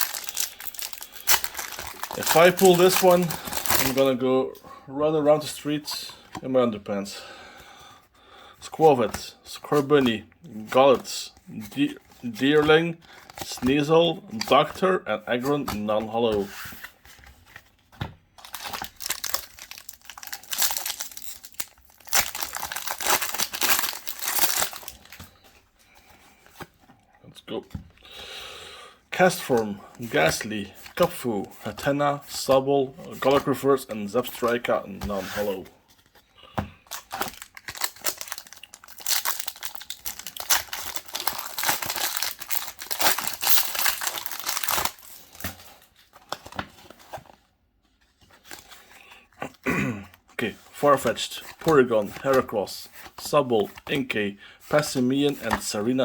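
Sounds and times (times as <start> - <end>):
foil wrapper crinkling and tearing: 0.0 - 4.1, 18.4 - 25.4, 36.8 - 46.6.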